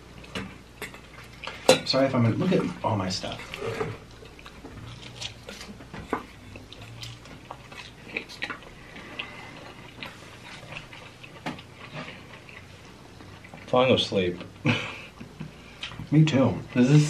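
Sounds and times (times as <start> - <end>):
chewing and mouth smacking: 3.2 - 13.8.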